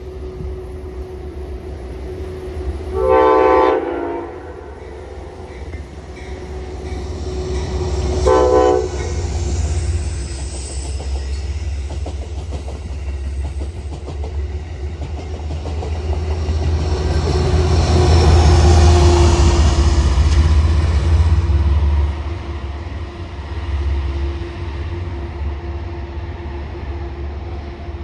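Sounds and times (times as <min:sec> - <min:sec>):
train rumbling: 0:00.0 - 0:28.0
train horn blast: 0:02.9 - 0:05.3, 0:08.1 - 0:09.3.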